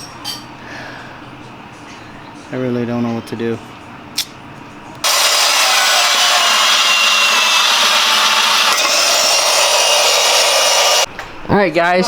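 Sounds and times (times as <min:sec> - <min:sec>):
power tool grinding metal: 0:05.0 - 0:11.1.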